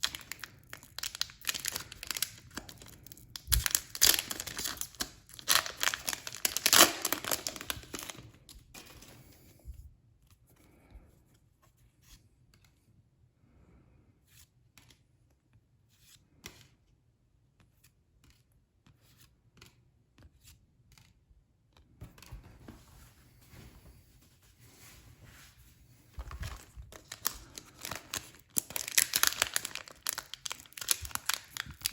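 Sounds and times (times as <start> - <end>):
foil wrapper tearing and crinkling: 0.0 - 8.4, 26.2 - 31.9.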